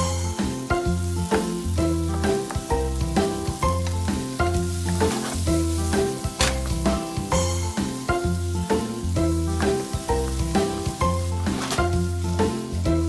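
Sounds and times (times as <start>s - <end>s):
background music with bass line: 0.0s - 13.0s
food sizzling in a frying pan: 0.0s - 13.0s
wooden spatula stirring: 3.4s - 7.0s, 9.6s - 12.4s.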